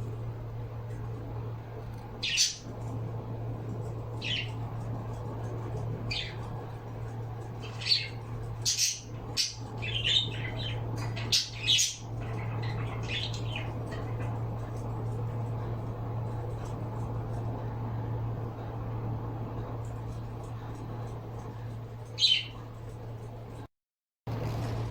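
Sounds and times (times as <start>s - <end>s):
steady low hum: 0.0s - 23.7s
birds squawking and chirping: 2.2s - 2.9s, 4.1s - 4.8s, 5.7s - 14.9s, 22.2s - 22.6s.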